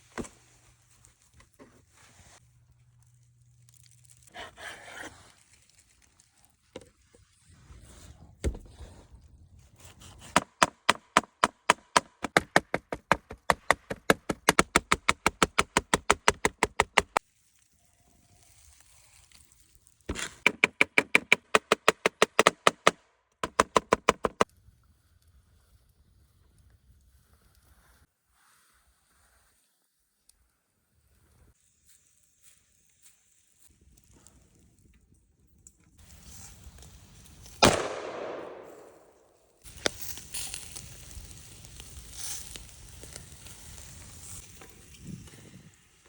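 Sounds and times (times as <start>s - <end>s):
rapid sharp knocks: 10.4s - 17.2s, 20.5s - 24.4s.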